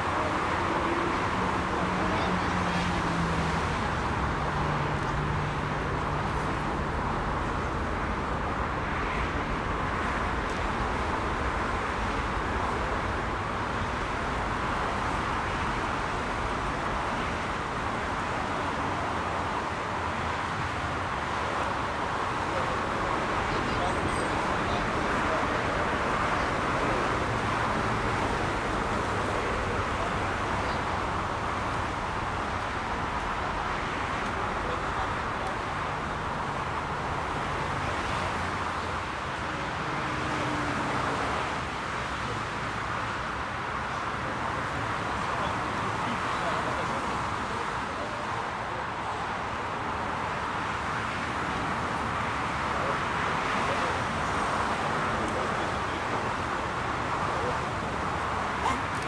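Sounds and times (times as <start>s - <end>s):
jet engine noise: 3.2s - 13.2s.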